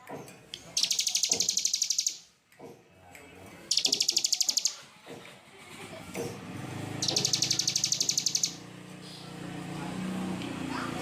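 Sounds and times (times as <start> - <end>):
songbird trilling: 0.7 - 2.3, 3.7 - 4.8, 7.0 - 8.6.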